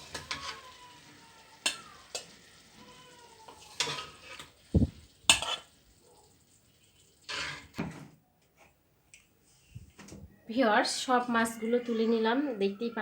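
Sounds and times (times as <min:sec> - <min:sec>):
metal spatula scraping pan: 0:00.0 - 0:00.7, 0:03.5 - 0:04.6, 0:05.3 - 0:05.8, 0:06.9 - 0:07.8
oil sizzling: 0:00.0 - 0:07.9.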